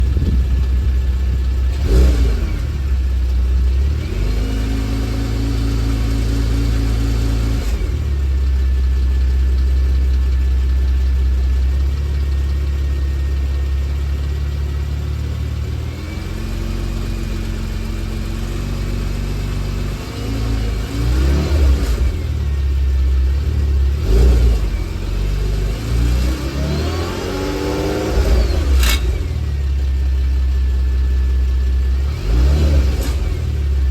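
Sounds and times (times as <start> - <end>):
car engine revving: 1.6 - 3.0, 15.9 - 22.6, 23.2 - 30.2, 31.8 - 33.9
metallic rattle: 28.2 - 29.6.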